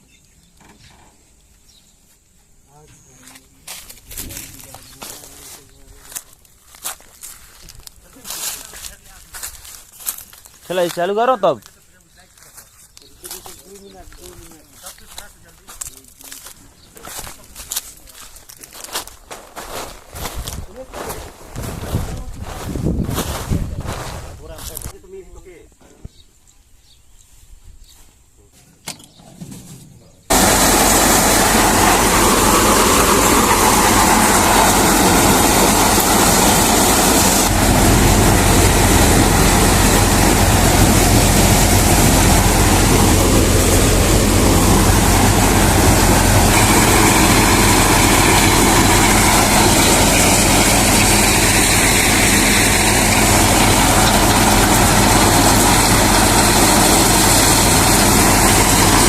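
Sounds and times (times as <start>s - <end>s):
low engine drone: 30.3s - 59.0s
thresher machine running: 30.3s - 59.0s.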